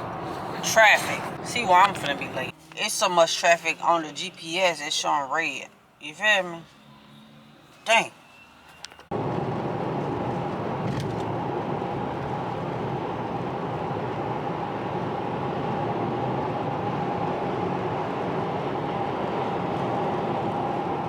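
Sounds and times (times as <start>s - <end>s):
faint constant hum: 0.0s - 6.8s
car road and engine noise: 0.0s - 21.0s.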